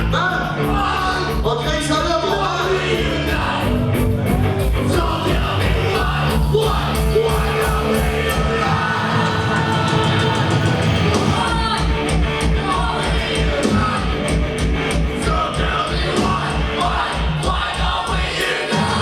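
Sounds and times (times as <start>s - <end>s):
drums keeping a steady beat: 0.0s - 19.0s
vocals: 0.0s - 19.0s
sustained guitar chords: 2.9s - 16.9s.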